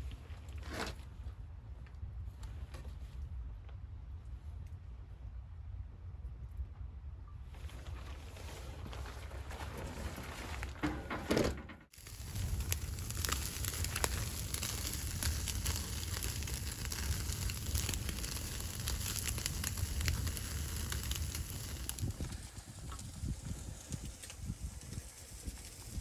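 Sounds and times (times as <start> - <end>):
wood fire crackling: 11.8 - 26.0
steady low rumble: 12.0 - 26.0.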